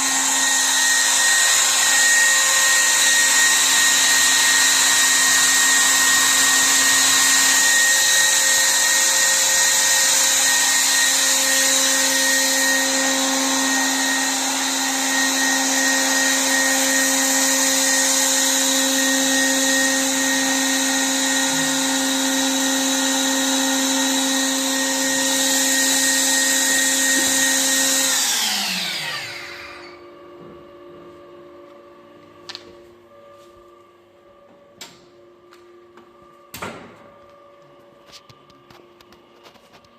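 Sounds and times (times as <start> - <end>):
motors winding down: 0.0 - 30.0
machine motor whine: 0.0 - 38.8.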